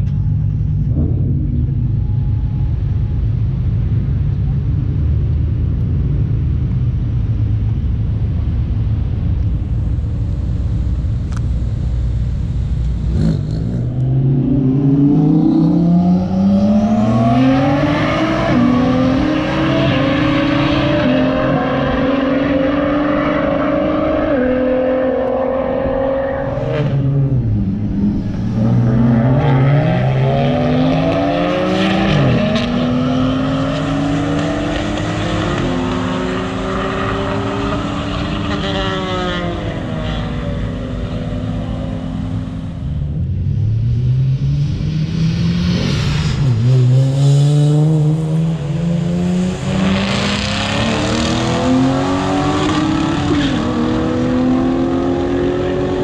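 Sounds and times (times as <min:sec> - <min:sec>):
cars accelerating hard: 0:12.8 - 0:56.0.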